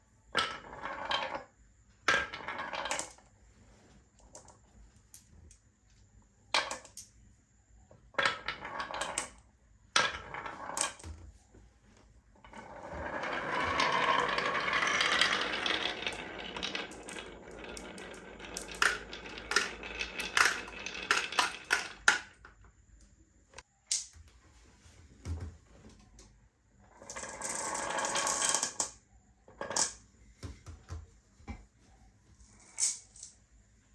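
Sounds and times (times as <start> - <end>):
marbles rattling down chute: 12.6 - 22.4
marbles clicking on track: 13.1 - 22.6, 27.0 - 29.0.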